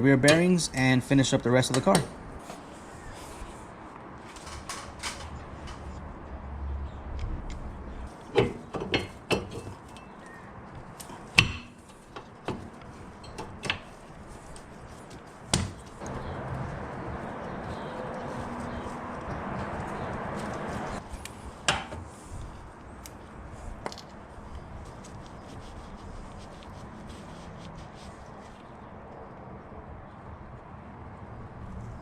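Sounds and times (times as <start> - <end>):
tools knocking and clanking: 1.7 - 2.2, 8.3 - 10.2, 11.2 - 14.0.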